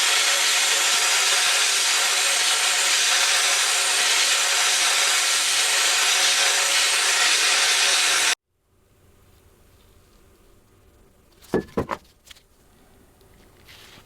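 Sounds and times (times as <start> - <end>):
workshop tool hissing and rubbing: 0.0 - 8.4.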